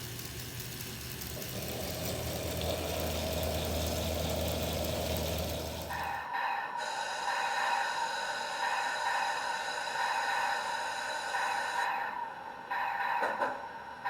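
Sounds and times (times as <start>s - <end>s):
model train steam hiss from speaker: 0.0s - 11.8s.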